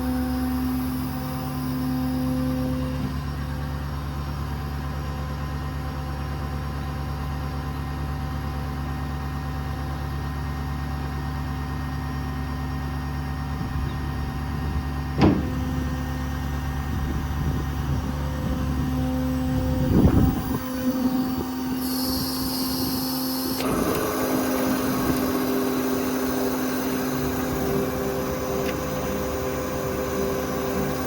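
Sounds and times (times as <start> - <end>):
diesel engine idling: 12.4 - 31.0
sharp clunk: 15.2 - 16.0.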